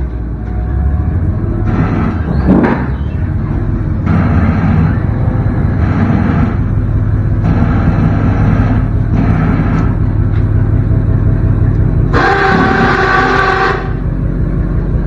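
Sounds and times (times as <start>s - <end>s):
engine humming: 0.0s - 15.0s
higher rushing noise: 1.4s - 10.3s.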